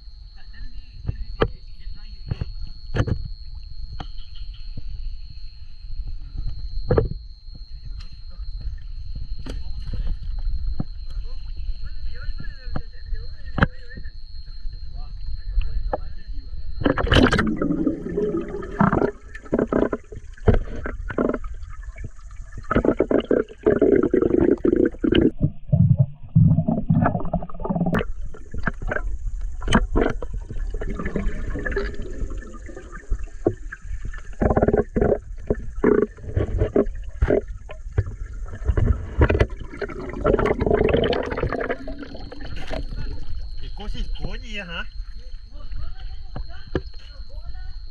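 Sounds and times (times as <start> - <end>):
irregular knocks and thumps: 6.9 - 7.2, 16.8 - 32.4, 33.1 - 43.5
water churning and gurgling: 16.6 - 45.2.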